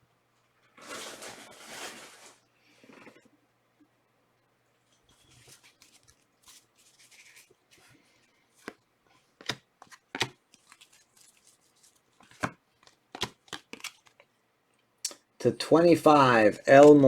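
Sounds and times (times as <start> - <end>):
cards clicking and tapping: 8.6 - 8.8, 9.4 - 11.0, 12.2 - 14.3, 16.6 - 17.0
cards sliding together: 8.6 - 8.8, 9.4 - 11.5.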